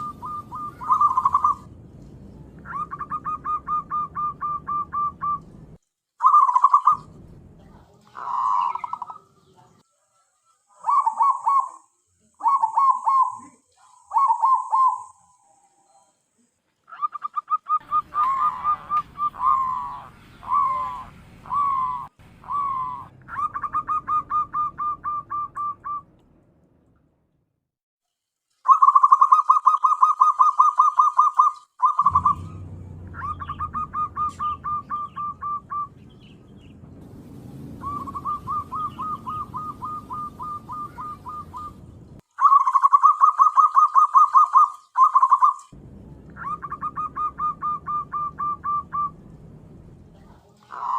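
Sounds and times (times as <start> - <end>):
dove cooing staccato notes: 0.0 - 1.7, 2.6 - 5.5, 16.9 - 26.0, 28.7 - 36.0, 37.8 - 45.7.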